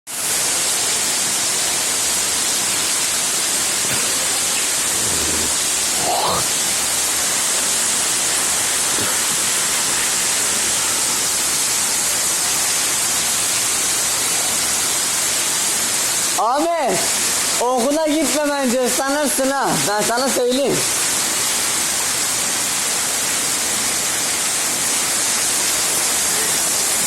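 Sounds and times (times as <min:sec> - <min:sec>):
heavy rain pouring: 0:00.1 - 0:27.0.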